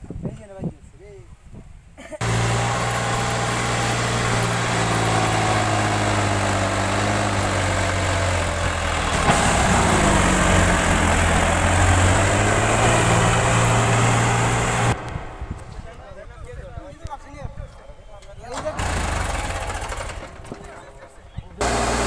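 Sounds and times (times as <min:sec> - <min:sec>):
tractor engine running under load: 0:02.2 - 0:16.0, 0:18.6 - 0:22.0.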